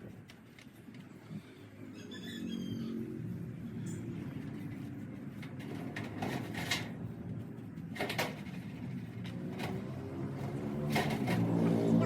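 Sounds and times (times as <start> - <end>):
sharp knocks and clanks: 7.9 - 11.8.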